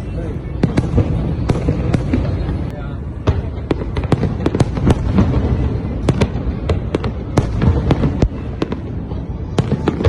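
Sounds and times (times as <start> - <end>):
fireworks bursting with sharp bangs: 0.0 - 10.0.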